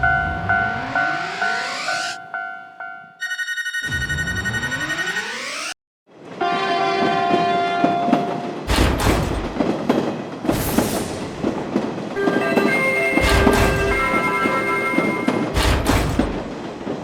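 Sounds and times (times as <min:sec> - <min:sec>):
level-crossing bell: 0:00.0 - 0:05.7, 0:12.2 - 0:15.5
train horn: 0:06.4 - 0:08.6
train wheels clattering: 0:07.3 - 0:17.0.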